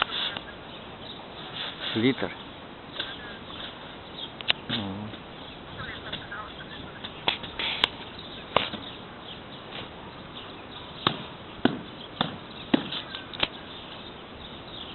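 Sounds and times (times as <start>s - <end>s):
sharp knocks: 11.0s - 13.5s.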